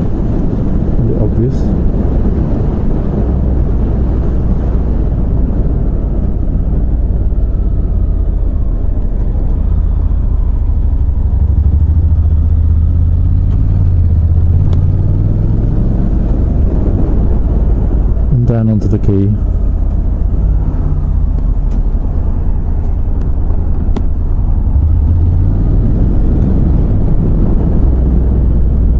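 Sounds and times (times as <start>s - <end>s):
road noise: 0.0s - 28.9s
wind noise: 0.0s - 28.9s
motorcycle engine running: 4.9s - 18.4s.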